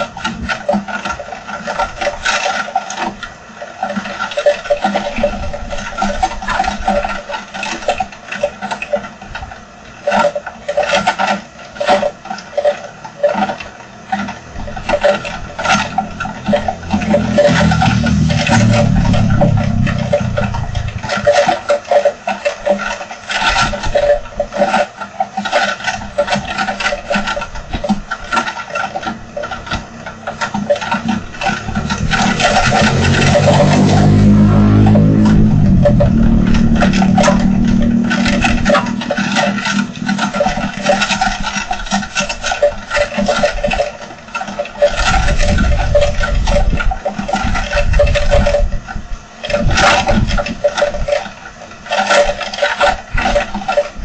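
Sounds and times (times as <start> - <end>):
wind: 0.0 - 54.0
vehicle passing by: 15.0 - 21.6, 30.1 - 41.0
heavy rain on hard surface: 15.0 - 21.8, 29.5 - 41.3.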